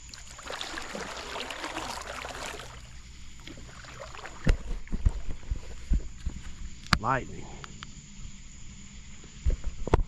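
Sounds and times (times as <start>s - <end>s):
water splashing around boat: 0.0s - 6.8s.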